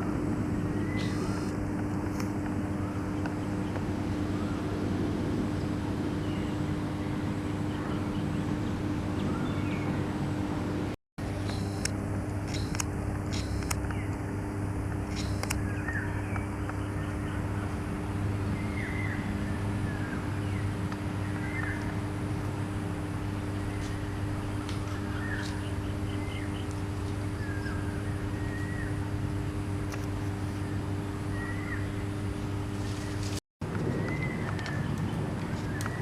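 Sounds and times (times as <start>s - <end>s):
low mechanical hum: 0.0s - 36.0s
bird calling with sharp notes: 0.8s - 1.5s.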